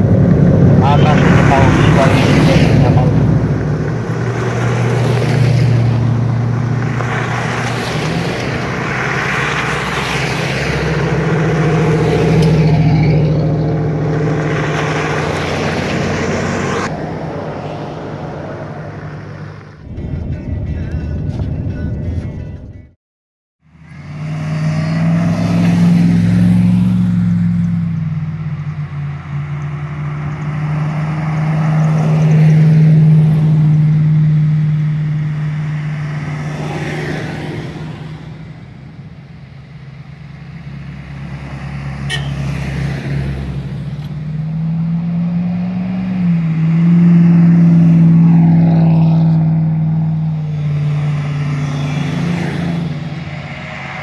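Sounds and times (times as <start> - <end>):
off-road vehicle engine running: 0.0 - 22.9.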